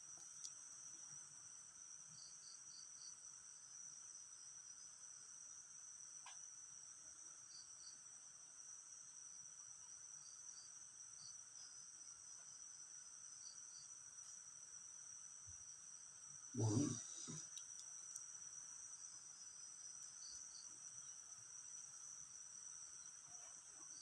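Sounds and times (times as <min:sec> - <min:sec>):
high-pitched insect chorus: 0:10.2 - 0:24.0.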